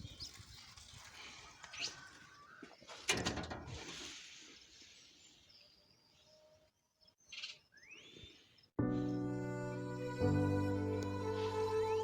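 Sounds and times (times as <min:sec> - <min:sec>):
birds chirping: 0:04.8 - 0:09.4.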